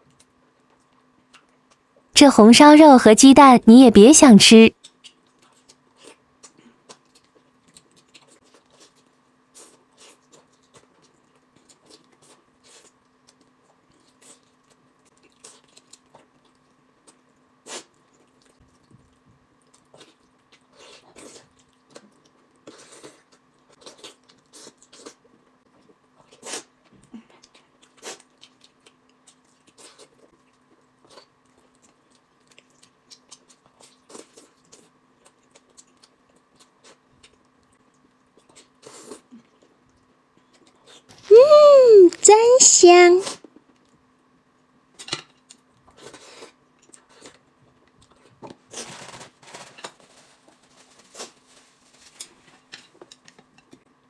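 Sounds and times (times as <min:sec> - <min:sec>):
person chewing food: 0:04.8 - 0:41.1, 0:45.3 - 0:48.8.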